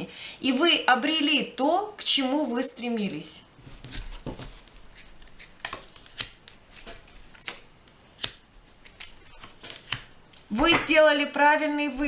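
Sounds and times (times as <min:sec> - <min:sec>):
cards snapping and tapping: 0:04.2 - 0:11.0.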